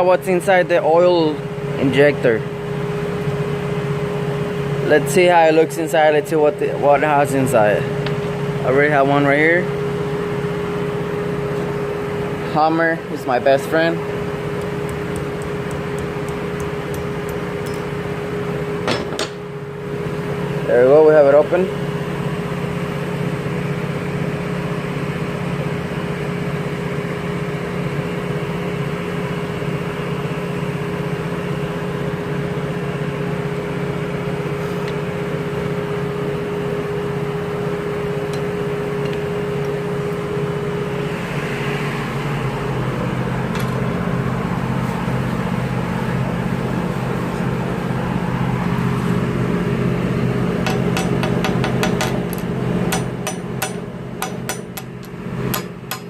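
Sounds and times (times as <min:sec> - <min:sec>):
steady machine hum: 0:00.0 - 0:56.0
hammer tapping metal: 0:14.6 - 0:18.1, 0:50.6 - 0:56.0.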